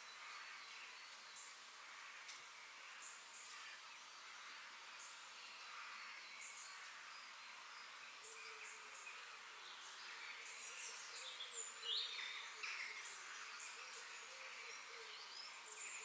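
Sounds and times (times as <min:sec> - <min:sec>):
faint insect hum: 0:00.0 - 0:16.0
small birds chirping: 0:00.0 - 0:16.0
steady high hiss: 0:00.0 - 0:16.0.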